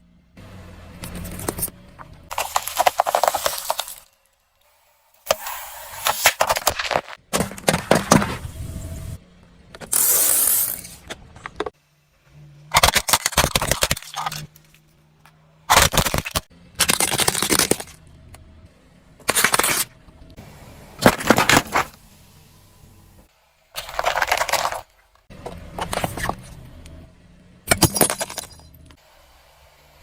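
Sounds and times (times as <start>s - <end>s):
objects crushed under car tyres: 2.3s - 4.5s, 21.0s - 22.0s, 23.8s - 25.0s, 27.6s - 28.8s.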